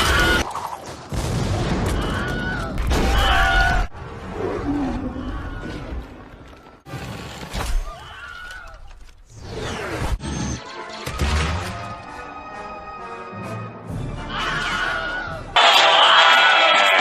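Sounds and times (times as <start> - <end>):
film soundtrack music: 9.3 - 16.2
high yells: 14.3 - 17.0.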